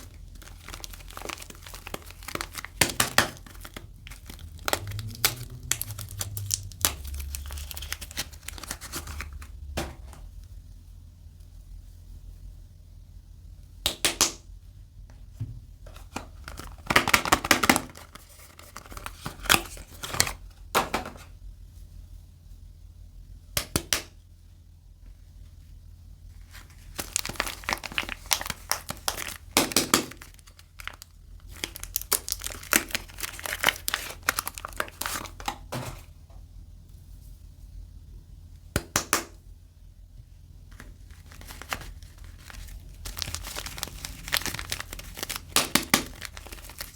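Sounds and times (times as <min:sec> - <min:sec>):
packaging crinkling and tearing: 0:00.0 - 0:10.2, 0:15.9 - 0:20.5, 0:26.4 - 0:36.1, 0:40.7 - 0:46.9.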